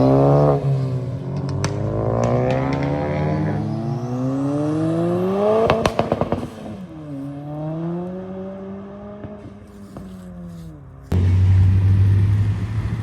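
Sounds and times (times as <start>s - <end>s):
exhaust popping: 0.0s - 6.9s
car engine revving: 0.0s - 13.0s.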